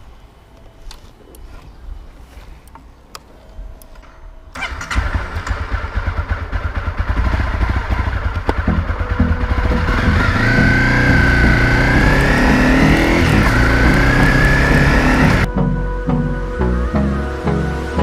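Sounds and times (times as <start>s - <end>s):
dirt bike engine running: 4.6s - 15.5s.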